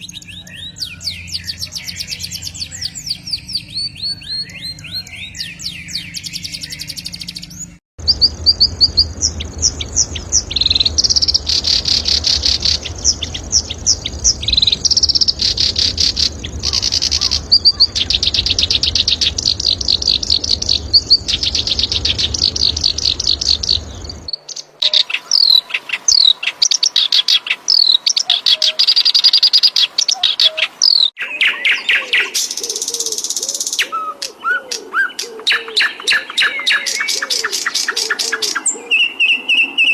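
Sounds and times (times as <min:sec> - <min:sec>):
songbirds trilling and chirping: 0:00.0 - 0:39.9
low steady hum: 0:01.0 - 0:24.3.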